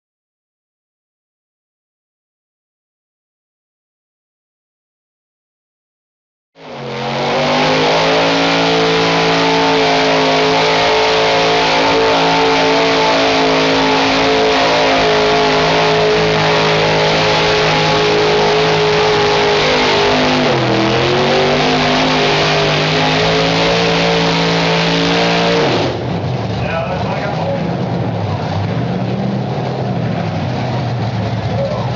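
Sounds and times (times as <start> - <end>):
truck engine at high revs: 6.6 - 31.9.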